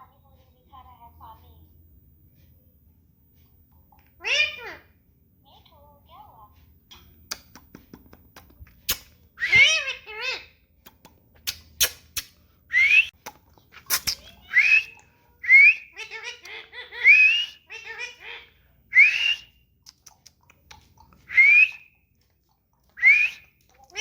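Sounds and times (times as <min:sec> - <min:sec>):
parrot whistling: 0:12.7 - 0:13.2, 0:14.0 - 0:18.2, 0:18.9 - 0:19.6, 0:21.3 - 0:21.9, 0:23.0 - 0:23.4.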